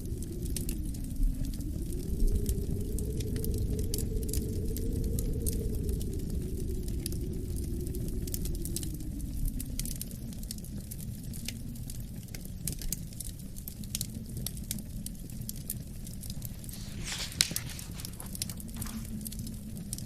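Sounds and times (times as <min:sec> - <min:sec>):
low wind rumble: 0:00.0 - 0:20.0
wood fire crackling: 0:00.0 - 0:20.0.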